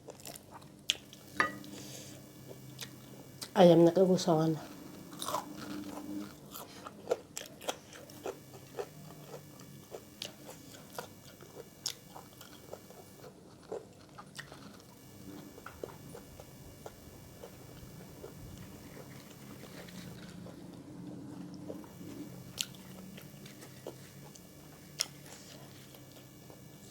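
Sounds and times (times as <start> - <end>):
person crunching and chewing food: 4.6 - 20.4, 21.7 - 26.6.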